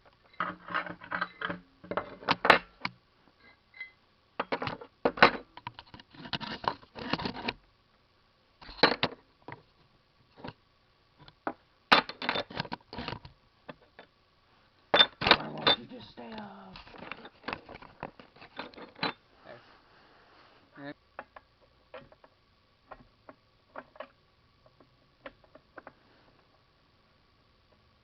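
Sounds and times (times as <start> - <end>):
metal parts and screws clinking: 0.3 - 2.7, 3.4 - 5.6, 14.9 - 19.2.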